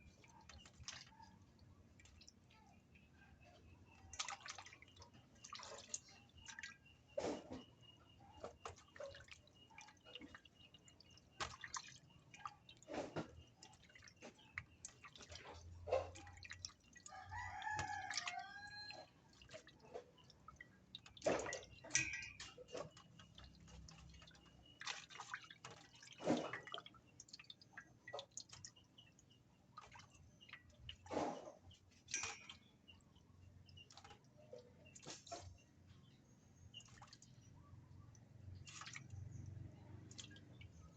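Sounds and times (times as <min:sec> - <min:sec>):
meat washed in water squelching: 0:00.0 - 0:40.9
rooster crowing: 0:17.1 - 0:19.0.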